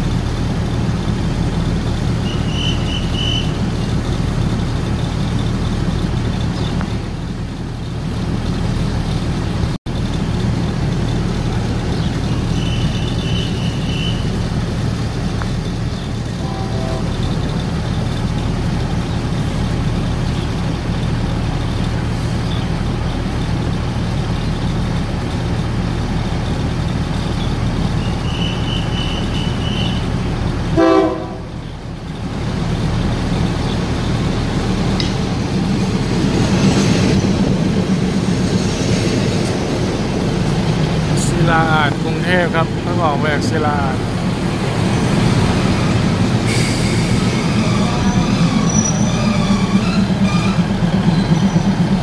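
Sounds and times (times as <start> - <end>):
diesel train idling: 0.0 - 52.0
rail rumble: 0.0 - 52.0
train horn toot: 2.2 - 3.6, 16.4 - 17.4, 28.2 - 30.1, 30.8 - 31.6.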